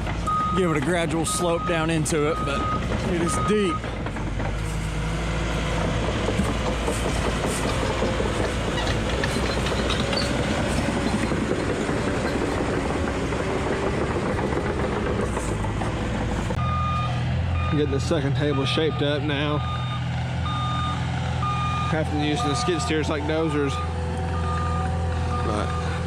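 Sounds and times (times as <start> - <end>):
diesel engine under load: 0.0 - 26.0
clatter of machine tracks: 5.7 - 16.6.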